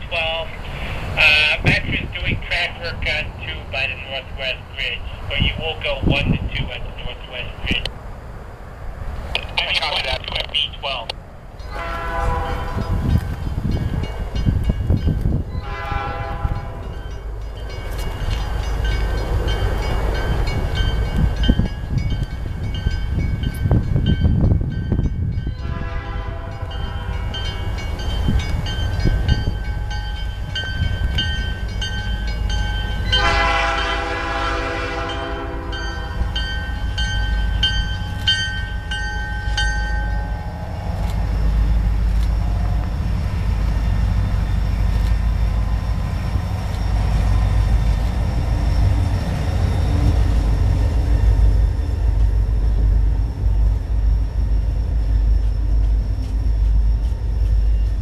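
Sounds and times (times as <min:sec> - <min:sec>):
diesel engines rumbling: 0:00.0 - 0:58.0
crossing bell ringing: 0:11.6 - 0:58.0
locomotive air horn blast: 0:11.7 - 0:13.1, 0:15.6 - 0:16.9, 0:25.6 - 0:27.2, 0:33.2 - 0:35.8.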